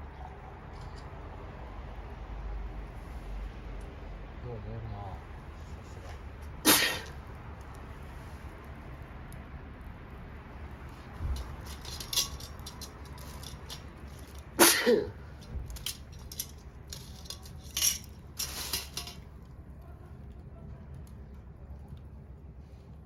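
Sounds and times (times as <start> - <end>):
sharp clatter: 11.1 - 19.4
hard objects clinking and knocking: 11.2 - 19.3.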